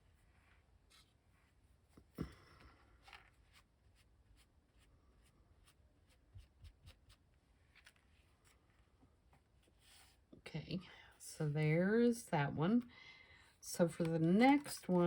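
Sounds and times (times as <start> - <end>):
paper rustling: 6.1 - 10.2, 13.8 - 15.0.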